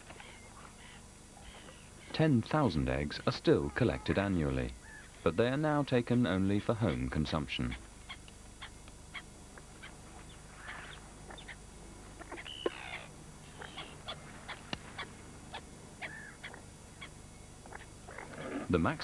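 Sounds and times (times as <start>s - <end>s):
birds chirping: 0.0s - 19.0s
long falling bird call: 8.1s - 18.4s.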